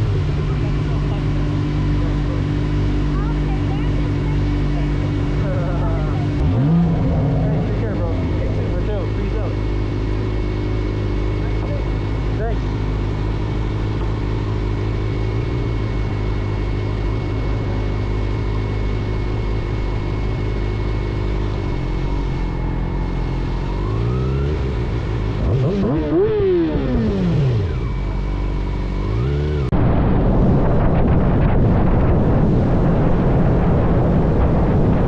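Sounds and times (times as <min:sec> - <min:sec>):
vehicle engine idling and revving: 0:00.0 - 0:35.0
wind noise: 0:29.7 - 0:35.0.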